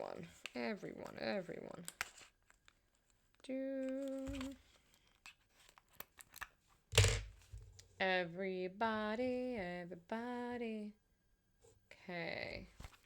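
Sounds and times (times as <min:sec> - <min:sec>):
packaging clicks and crinkles: 0:03.8 - 0:06.6.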